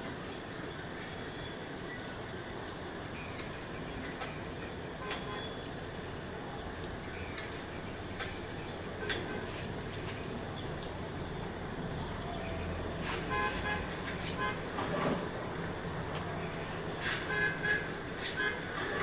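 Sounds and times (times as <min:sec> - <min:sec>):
high-pitched insect chirring: 0:00.1 - 0:13.0
vehicle horn toots: 0:05.0 - 0:05.6, 0:13.1 - 0:14.8, 0:17.1 - 0:19.0
sharp metallic clicks: 0:07.2 - 0:09.3.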